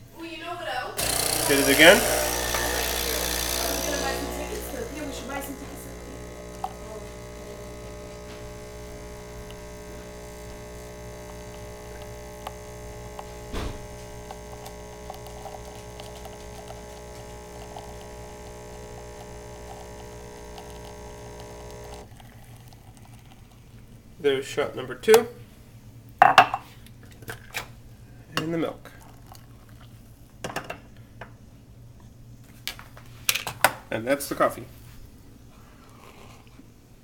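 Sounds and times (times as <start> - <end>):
coffee machine pump humming: 1.0 - 24.1, 28.9 - 30.1.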